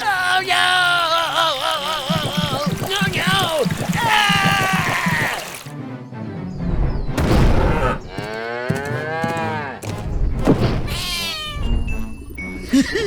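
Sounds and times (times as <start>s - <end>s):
music: 4.8s - 13.0s.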